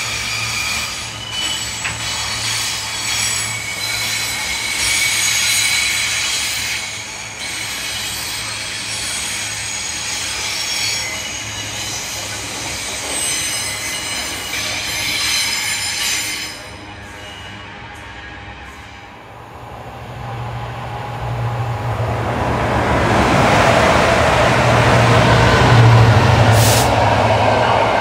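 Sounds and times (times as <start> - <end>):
train wheels squealing: 0.0 - 19.2
train running noise: 0.0 - 28.0.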